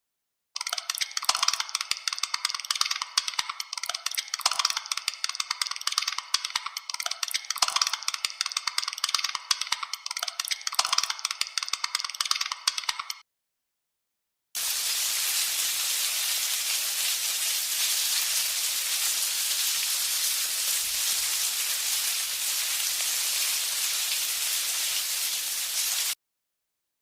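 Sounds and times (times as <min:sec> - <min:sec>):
steady even hiss: 0:14.6 - 0:26.2.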